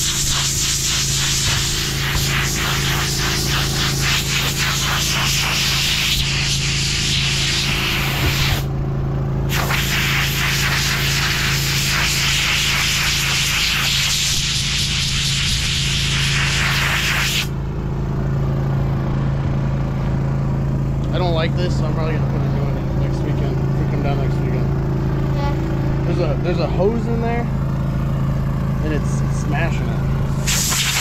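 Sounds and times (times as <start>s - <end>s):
compressed air hissing: 0.0s - 8.7s, 9.5s - 17.5s, 30.3s - 31.0s
steady engine hum: 0.0s - 31.0s.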